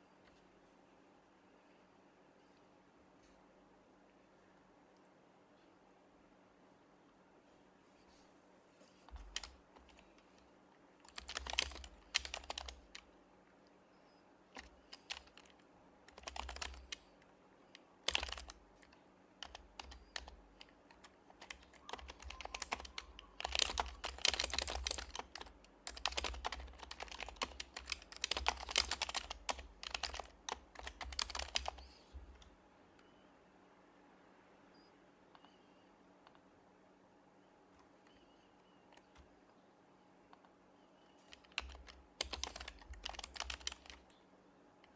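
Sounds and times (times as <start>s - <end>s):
soft keyboard typing: 9.0s - 33.2s, 34.8s - 36.5s, 37.8s - 39.6s, 40.2s - 44.9s.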